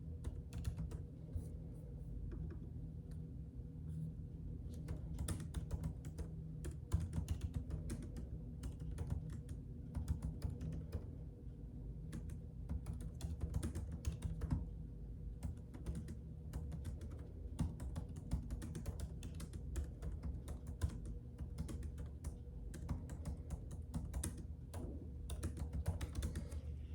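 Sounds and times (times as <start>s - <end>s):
low steady hum: 0.0s - 26.9s
typing on computer keyboard: 0.2s - 1.0s, 4.7s - 11.1s, 12.1s - 14.7s, 15.4s - 26.7s.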